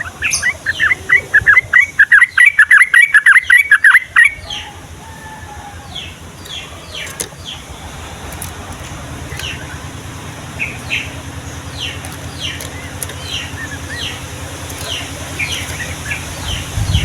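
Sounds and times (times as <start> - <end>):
bird singing whistled notes: 0.0 - 4.7
steady low rumble: 7.5 - 17.0.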